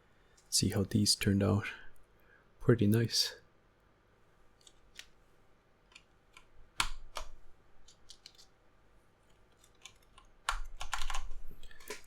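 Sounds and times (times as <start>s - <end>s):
mechanical keyboard keys clicking: 9.6s - 12.0s.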